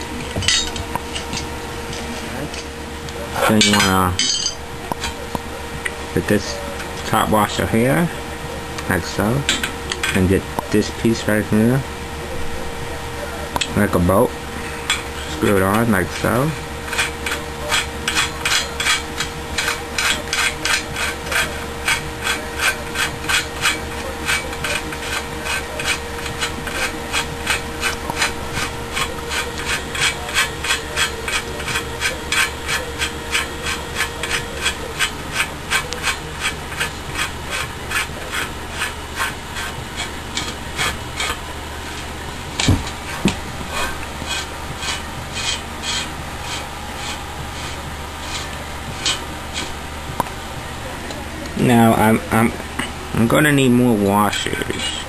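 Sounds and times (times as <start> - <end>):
metal scraping on metal: 0.0 - 12.8, 13.5 - 49.9.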